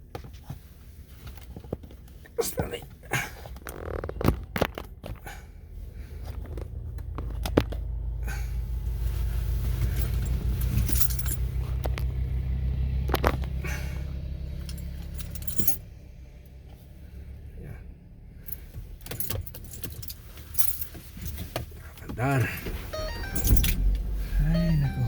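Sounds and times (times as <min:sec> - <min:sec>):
car engine running: 0:00.6 - 0:25.0
keys jangling: 0:09.9 - 0:11.4, 0:14.6 - 0:15.8, 0:23.0 - 0:23.8.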